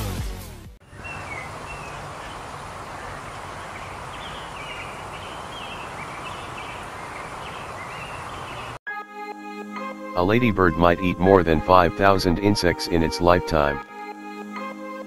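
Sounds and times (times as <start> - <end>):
small birds chirping: 0.8 - 8.8.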